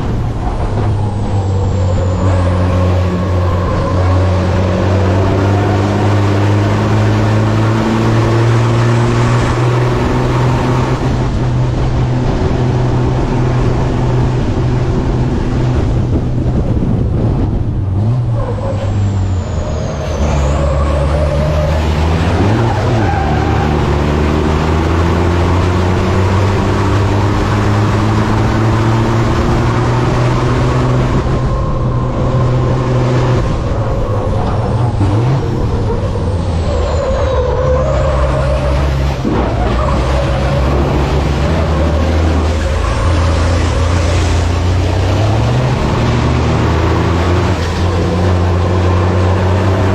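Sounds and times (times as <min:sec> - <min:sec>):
truck diesel engine revving: 0:00.0 - 0:49.9.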